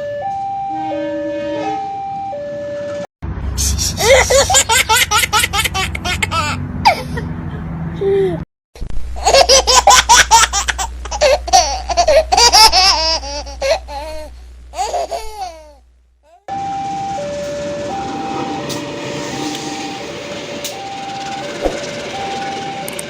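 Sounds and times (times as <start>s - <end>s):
two-note signal tone: 0.0s - 3.0s, 16.5s - 23.0s
baby laughing: 4.0s - 7.3s, 9.2s - 16.5s
low steady hum: 8.8s - 16.4s
train rushing noise: 16.6s - 23.0s.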